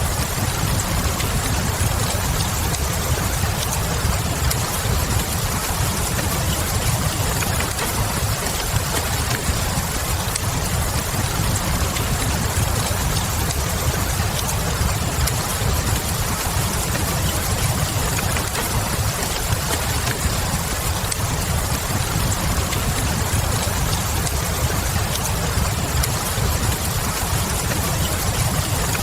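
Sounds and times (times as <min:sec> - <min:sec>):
rain hissing: 0:00.0 - 0:29.0
wood fire crackles: 0:00.0 - 0:29.0.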